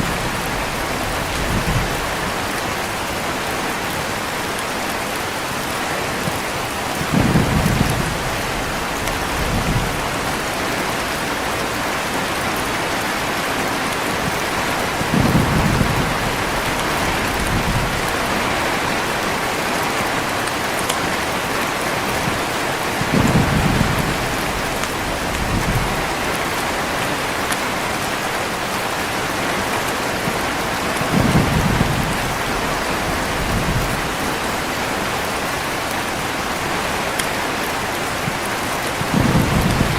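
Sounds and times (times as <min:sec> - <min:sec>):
thunder rolling: 0:00.0 - 0:02.8, 0:06.9 - 0:12.0, 0:14.1 - 0:19.8, 0:23.0 - 0:26.9, 0:31.0 - 0:35.4, 0:39.0 - 0:39.9
heavy rain falling: 0:00.0 - 0:39.9.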